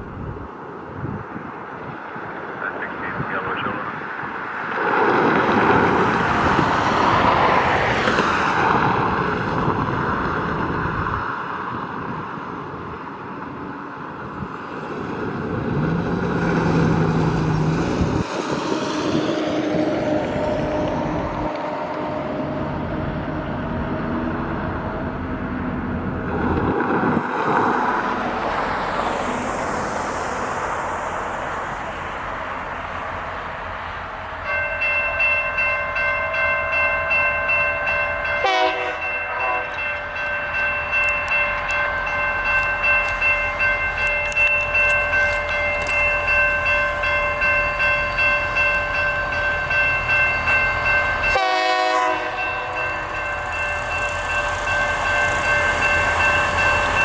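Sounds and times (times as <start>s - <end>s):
road vehicle passing: 14.8s - 57.0s
locomotive horn blasts: 38.3s - 39.9s, 51.3s - 52.7s.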